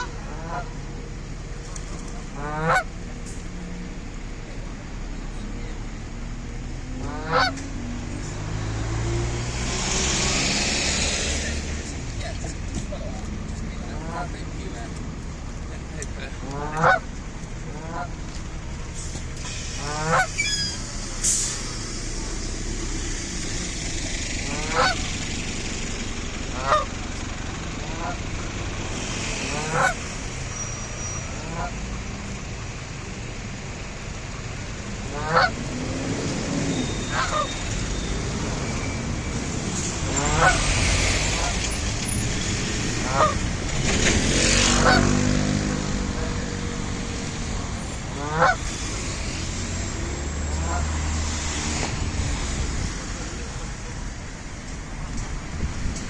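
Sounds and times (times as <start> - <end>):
geese honking: 0.0 - 1.0, 2.2 - 3.0, 6.9 - 7.6, 13.8 - 14.7, 15.7 - 18.3, 19.4 - 21.0, 24.5 - 25.2, 26.5 - 27.2, 27.8 - 28.3, 29.4 - 30.1, 31.2 - 31.9, 35.0 - 36.0, 36.7 - 41.8, 42.9 - 43.6, 44.6 - 45.2, 48.1 - 48.8, 50.5 - 51.2
passing vehicle engine: 0.0 - 56.0
high thin bird calls: 20.3 - 20.9.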